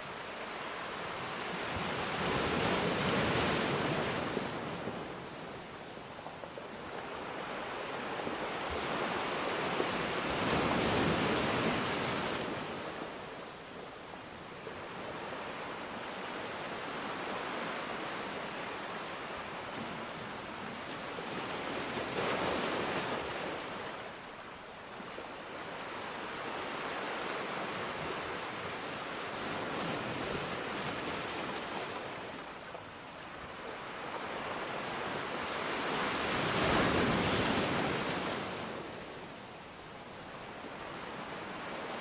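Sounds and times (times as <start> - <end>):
sea waves washing ashore: 0.0 - 42.0.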